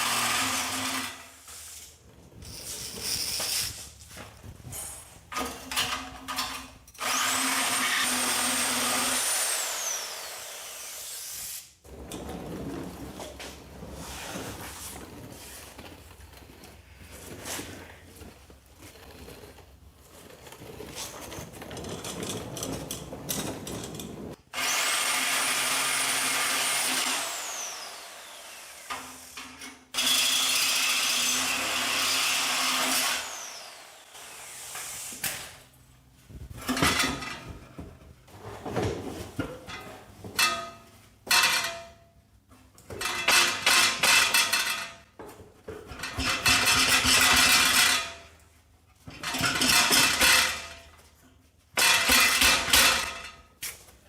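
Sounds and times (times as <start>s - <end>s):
reciprocating saw cutting metal pipe: 7.0s - 11.7s, 24.6s - 35.5s.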